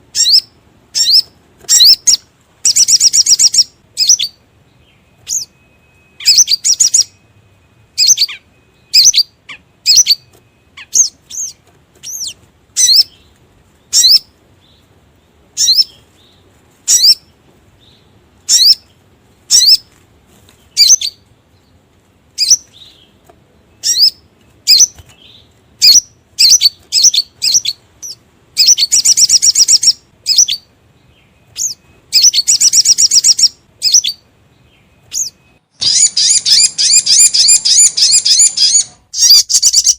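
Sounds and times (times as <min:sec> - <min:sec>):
sunbird chirping: 0:00.0 - 0:39.9
bird rapid trills: 0:35.1 - 0:39.9.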